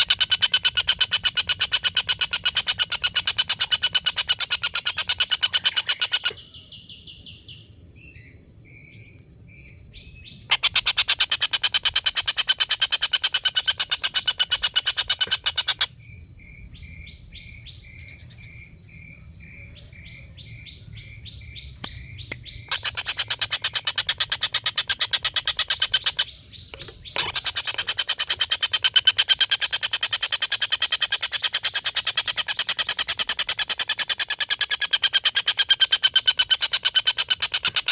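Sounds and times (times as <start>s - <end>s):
kingfisher chattering call: 0.0s - 6.4s, 10.2s - 15.9s, 21.8s - 33.2s.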